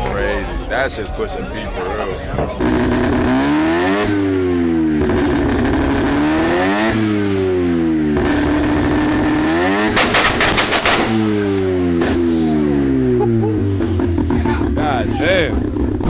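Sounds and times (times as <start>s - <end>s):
car engine revving: 1.0s - 16.0s
exhaust pops and bangs: 1.9s - 12.5s.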